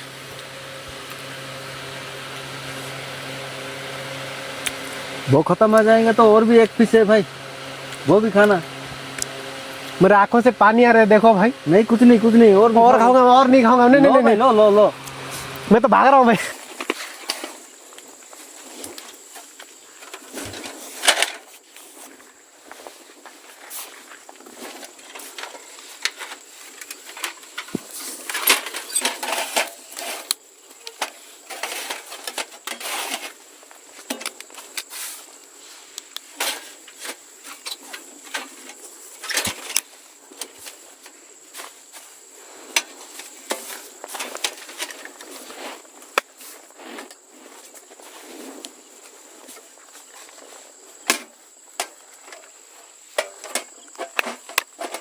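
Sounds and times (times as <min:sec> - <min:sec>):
crickets trilling: 0:00.0 - 0:55.0
rustling and knocks of handling: 0:16.4 - 0:55.0.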